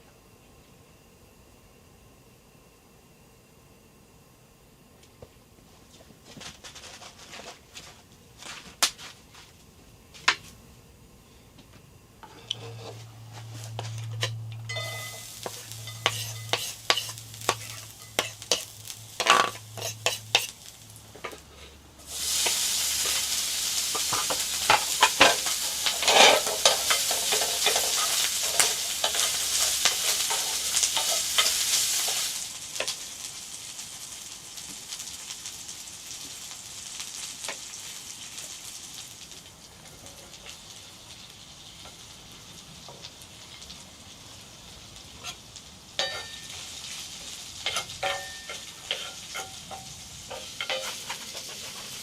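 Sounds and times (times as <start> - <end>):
cooking utensil clicking and scraping: 12.2 - 13.1, 13.7 - 20.6, 22.4 - 33.0, 46.0 - 46.6, 47.6 - 52.0
food sizzling in a hot pan: 12.2 - 52.0.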